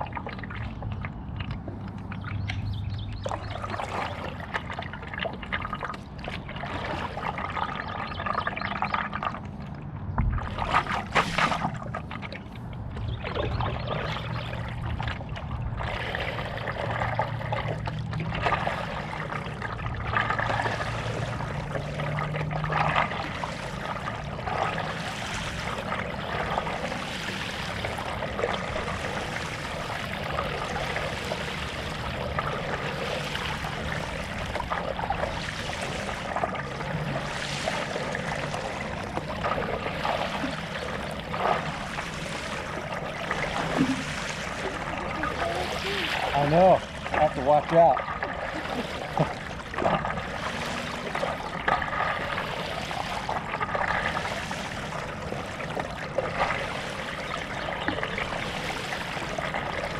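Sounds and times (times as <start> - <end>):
paddle strokes in water: 0.0 - 59.9
water trickling off paddle: 0.0 - 59.9.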